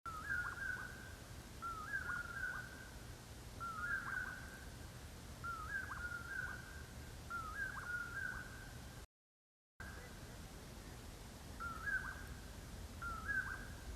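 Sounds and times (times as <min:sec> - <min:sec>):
bird whistling a phrase: 0:01.6 - 0:02.6, 0:11.6 - 0:12.2, 0:13.0 - 0:13.6.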